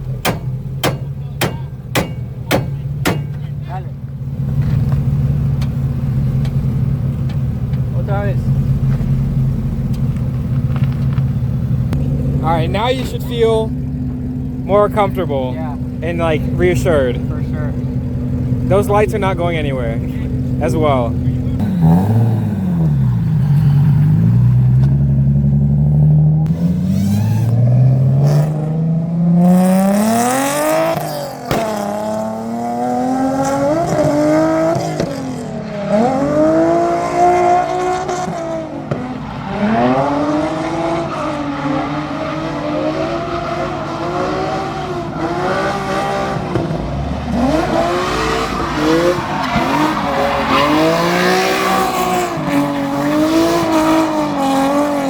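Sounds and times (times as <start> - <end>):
car engine revving hard: 11.8 - 55.0
tyres squealing: 47.2 - 55.0.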